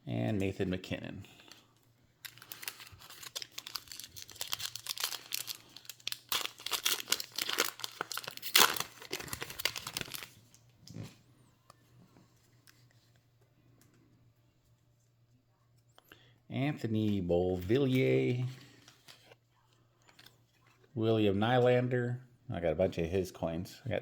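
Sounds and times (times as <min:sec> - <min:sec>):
foil wrapper crinkling: 0:01.4 - 0:10.6.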